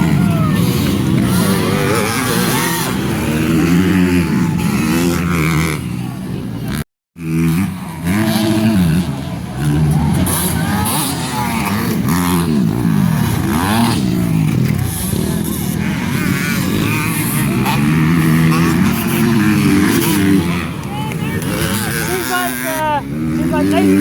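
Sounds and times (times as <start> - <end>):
motocross bikes revving: 0.0 - 24.0.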